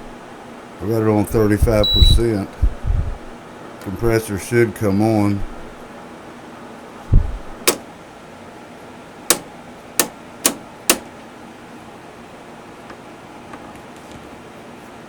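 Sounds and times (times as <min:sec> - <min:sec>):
dehumidifier fan running: 0:00.0 - 0:15.0
dull low thump: 0:01.6 - 0:03.2, 0:07.1 - 0:07.6
sharp clicks: 0:07.6 - 0:07.8, 0:09.3 - 0:11.1.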